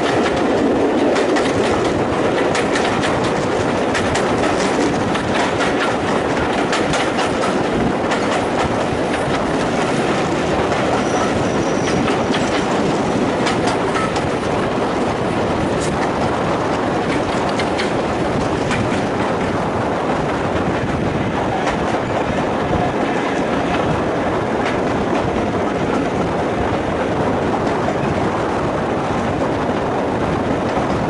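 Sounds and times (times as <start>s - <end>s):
train wheels rumbling on rail: 0.0s - 31.0s
wheels clicking over rail joints: 0.0s - 31.0s.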